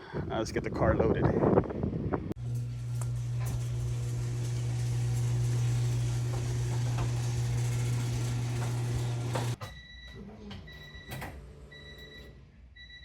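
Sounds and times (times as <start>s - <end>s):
motor humming steadily: 2.4s - 9.6s.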